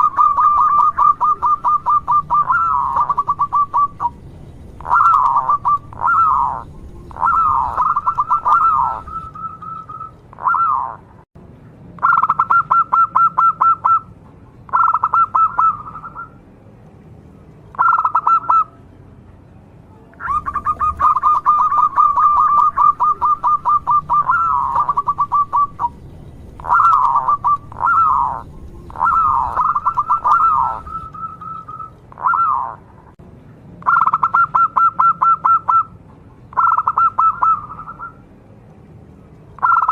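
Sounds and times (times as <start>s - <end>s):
dove cooing: 0.0s - 4.2s, 4.8s - 11.0s, 12.0s - 14.1s, 14.7s - 16.4s, 17.7s - 18.7s, 20.2s - 32.9s, 33.9s - 35.9s, 36.6s - 38.2s.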